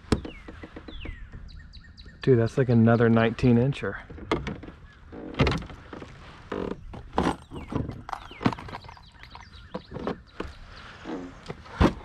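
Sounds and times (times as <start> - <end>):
fishing gear knocking and rustling: 0.0 - 1.6, 4.0 - 12.0.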